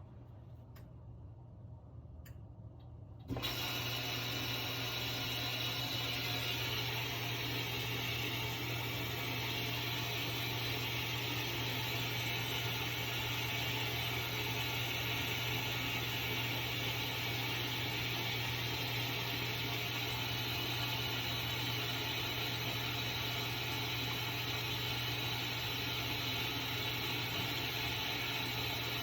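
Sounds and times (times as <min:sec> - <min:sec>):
washing machine humming: 0:03.2 - 0:29.0.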